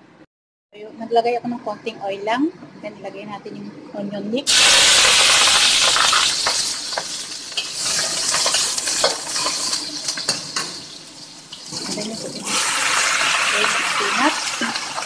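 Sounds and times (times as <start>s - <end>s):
onions sizzling in hot oil: 4.5s - 15.0s
spatula scraping a pan: 5.9s - 13.2s.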